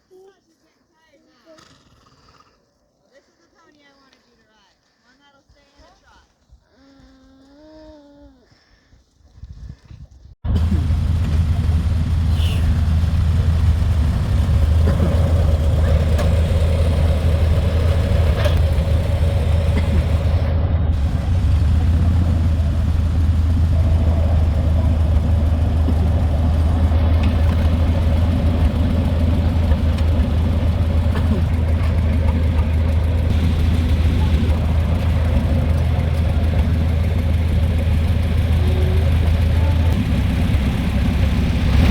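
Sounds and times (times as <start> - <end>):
engine running with low hum: 10.5 - 41.9.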